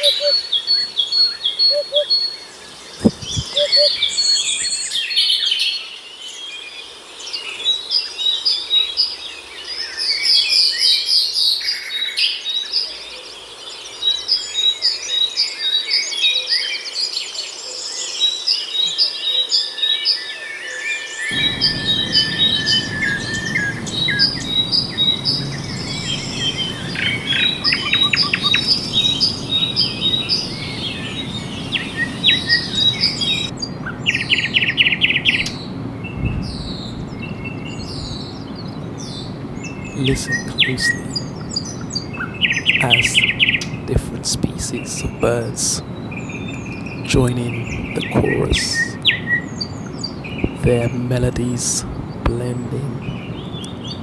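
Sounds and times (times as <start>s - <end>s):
bird repeating high note: 0.0s - 0.4s, 3.0s - 4.1s, 21.3s - 33.5s
songbirds chirping and trilling: 0.0s - 0.5s, 1.2s - 4.9s, 21.3s - 54.0s
low rushing noise: 21.3s - 33.5s.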